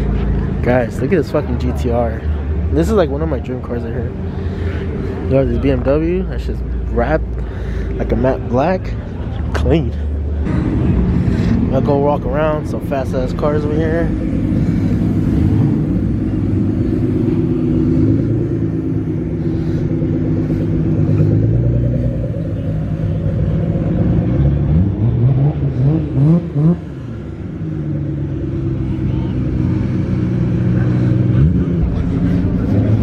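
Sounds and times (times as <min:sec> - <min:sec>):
car engines idling: 0:00.0 - 0:33.0
engine revving in blips: 0:14.6 - 0:27.7.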